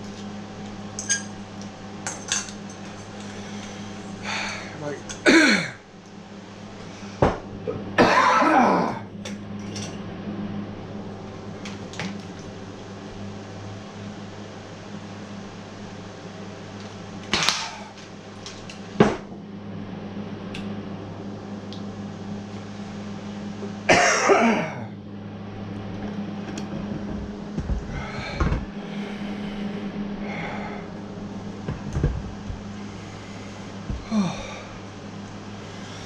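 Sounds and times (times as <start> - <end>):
low electrical hum: 0.0 - 36.0
man coughing and exhaling: 5.2 - 5.8, 8.0 - 9.1, 23.9 - 24.9.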